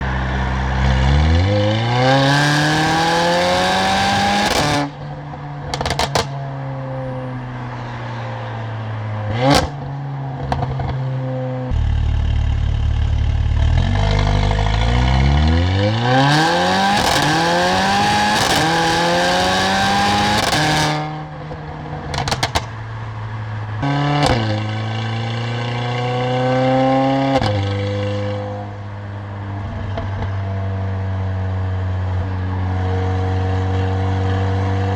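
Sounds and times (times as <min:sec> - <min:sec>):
car engine accelerating hard: 0:00.0 - 0:05.0, 0:05.6 - 0:34.9
exhaust cracks: 0:04.4 - 0:06.4, 0:11.7 - 0:19.4, 0:20.0 - 0:24.5.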